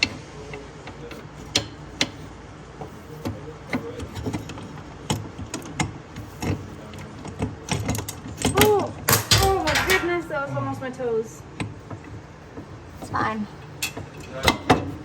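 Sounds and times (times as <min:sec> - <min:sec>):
metal tools clinking: 0:08.4 - 0:10.3.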